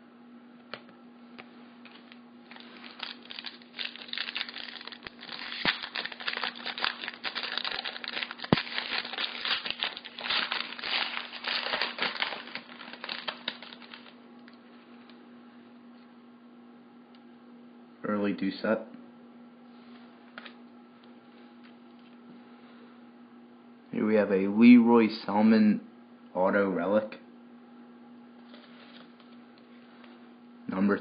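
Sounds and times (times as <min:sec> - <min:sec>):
steady low hum: 0:00.0 - 0:31.0
foil wrapper crinkling: 0:02.4 - 0:14.2.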